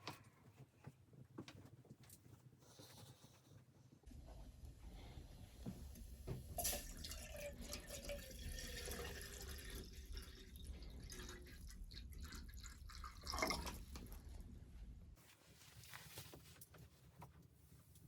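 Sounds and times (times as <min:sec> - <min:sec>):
water dripping and trickling: 0:06.6 - 0:14.3.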